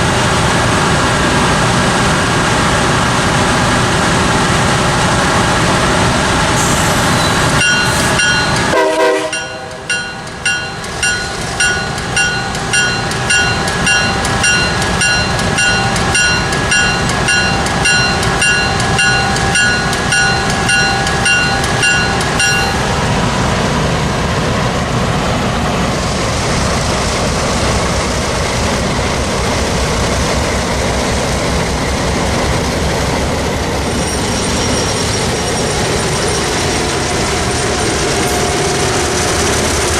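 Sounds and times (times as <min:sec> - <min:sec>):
train wheels rumbling on rails: 0:00.0 - 0:39.9
crossing bell ringing: 0:07.1 - 0:23.4, 0:33.8 - 0:36.7
train horn: 0:08.7 - 0:09.9.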